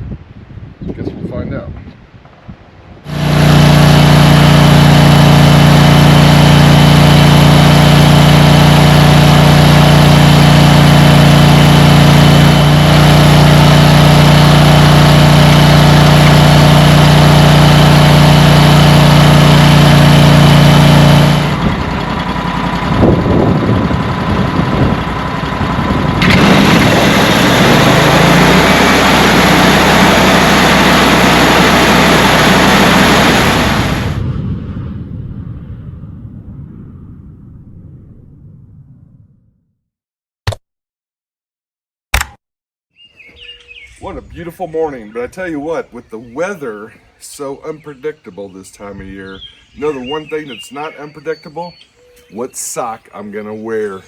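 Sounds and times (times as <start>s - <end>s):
uneven engine and machine noise: 3.0s - 35.1s
sawmill engine running: 3.1s - 34.3s, 49.8s - 54.0s.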